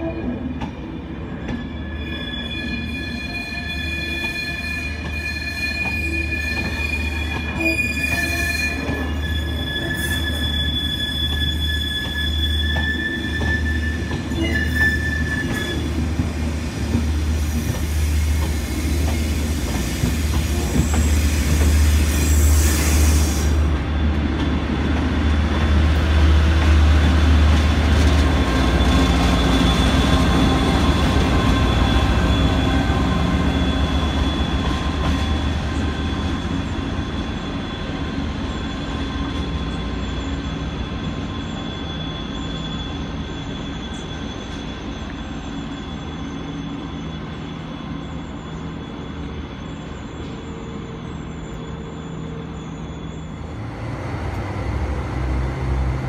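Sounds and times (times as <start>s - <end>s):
train coaches rolling: 0.0s - 56.0s
wheel squeal: 1.4s - 16.0s, 28.4s - 54.7s.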